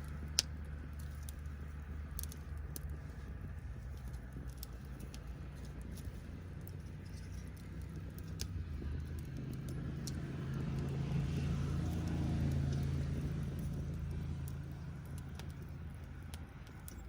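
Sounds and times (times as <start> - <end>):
passing vehicle engine hum: 0.0 - 17.0
wood fire crackling and popping: 0.0 - 17.0.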